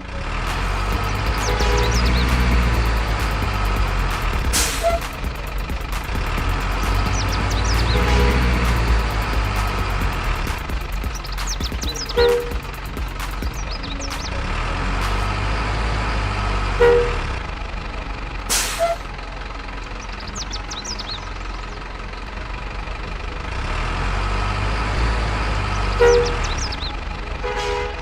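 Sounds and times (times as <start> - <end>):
horn-like tones: 0.0 - 10.7, 11.9 - 13.0, 16.4 - 17.4, 18.5 - 19.1, 25.8 - 26.8, 27.4 - 28.0
heavy truck engine running: 0.0 - 28.0
air brake hiss: 4.5 - 5.1, 18.5 - 19.1.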